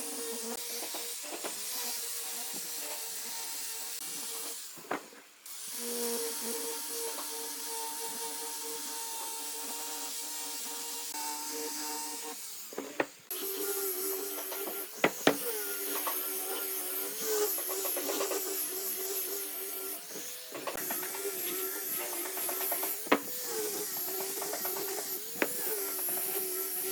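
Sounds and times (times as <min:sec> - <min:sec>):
wood lathe motor hum: 0:12.1 - 0:26.9
hiss of cutting wood: 0:12.2 - 0:26.9.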